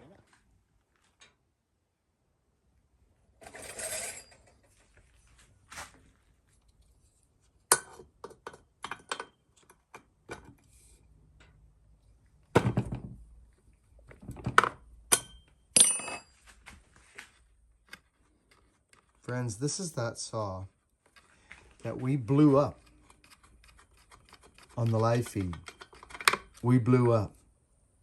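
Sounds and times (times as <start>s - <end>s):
metallic clinks and knocks: 15.1s - 16.4s, 25.3s - 26.6s.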